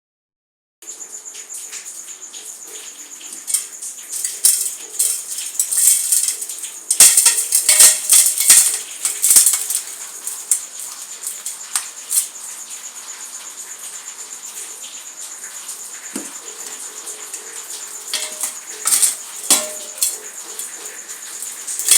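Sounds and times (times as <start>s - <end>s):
dry material crumbling: 3.4s - 12.3s, 18.1s - 20.3s, 21.4s - 21.9s.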